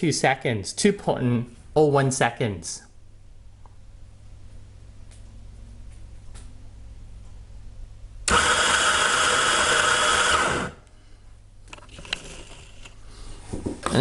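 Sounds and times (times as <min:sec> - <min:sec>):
electric coffee grinder motor: 0:08.3 - 0:10.8.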